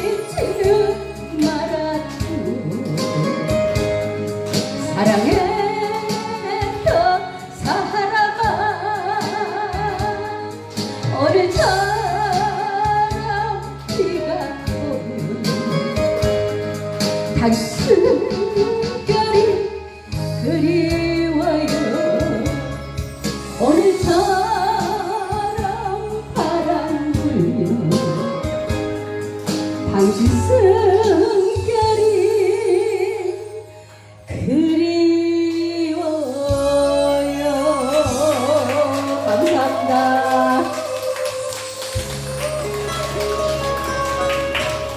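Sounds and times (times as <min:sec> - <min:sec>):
woman singing with vibrato: 0:00.0 - 0:04.1, 0:04.8 - 0:16.2, 0:23.6 - 0:28.4, 0:34.3 - 0:44.9
backing music with bass: 0:00.0 - 0:32.9, 0:36.2 - 0:44.9.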